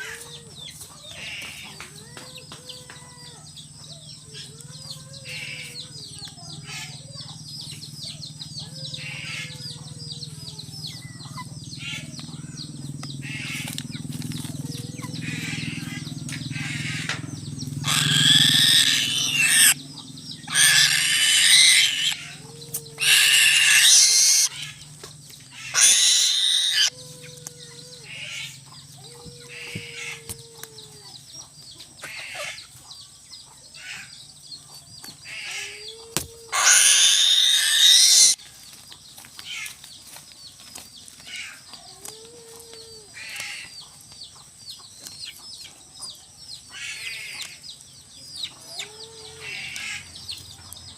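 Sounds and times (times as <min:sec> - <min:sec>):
harsh bird squawks: 0:13.2 - 0:13.8, 0:15.0 - 0:17.2, 0:17.8 - 0:19.8, 0:20.5 - 0:22.4, 0:23.0 - 0:24.8, 0:25.5 - 0:27.0, 0:36.5 - 0:38.4.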